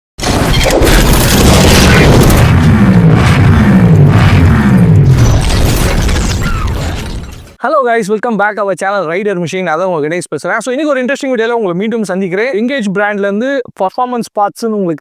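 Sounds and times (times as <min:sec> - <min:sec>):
motorcycle revving: 0:01.0 - 0:05.8.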